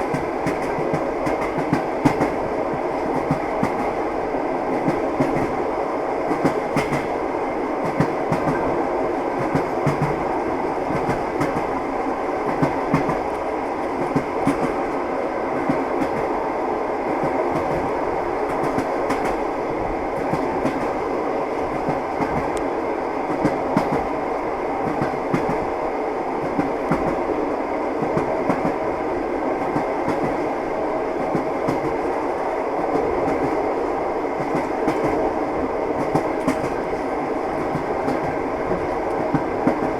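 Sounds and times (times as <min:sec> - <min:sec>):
train rolling rumble and rattle: 0:00.0 - 0:39.9
train wheels clacking over rail joints: 0:06.3 - 0:07.1, 0:36.0 - 0:36.9.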